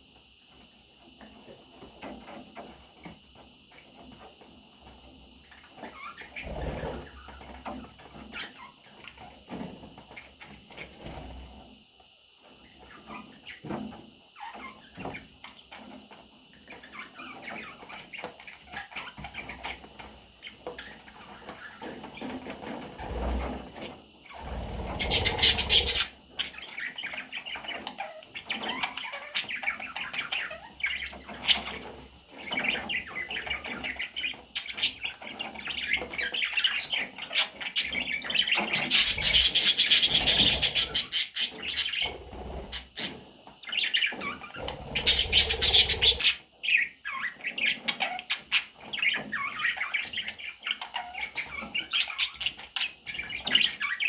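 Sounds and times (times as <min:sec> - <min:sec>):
bird chicks chirping: 0:12.8 - 0:54.0.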